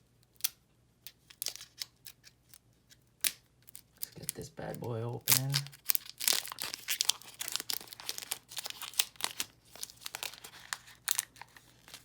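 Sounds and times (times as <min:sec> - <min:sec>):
foil wrapper crinkling: 0:03.6 - 0:12.0.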